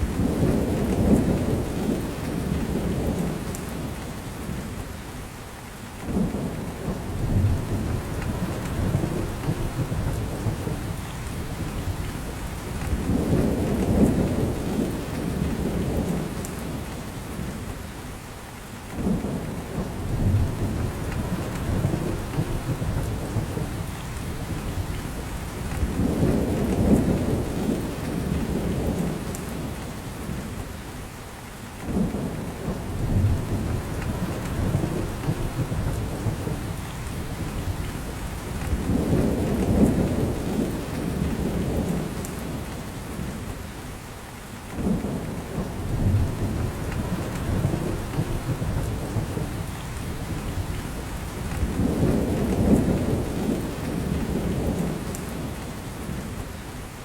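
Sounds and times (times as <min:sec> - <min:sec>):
rain falling in forest: 0:00.0 - 0:57.0.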